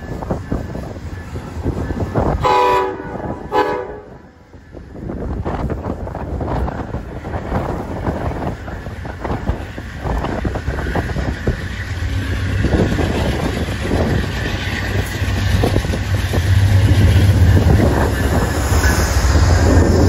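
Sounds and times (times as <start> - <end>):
diesel locomotive engine rumble: 0.0 - 20.0.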